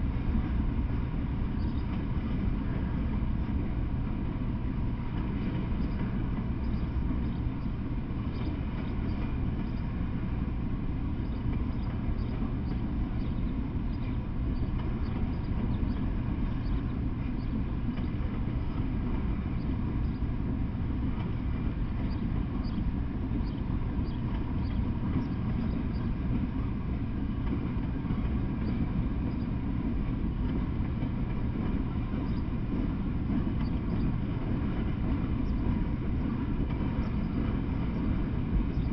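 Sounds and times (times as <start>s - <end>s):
freight train wheels rumbling: 0.0s - 38.9s.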